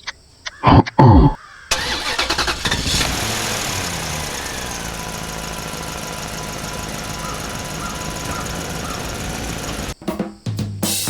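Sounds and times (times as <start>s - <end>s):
tractor engine chugging: 1.7s - 10.0s.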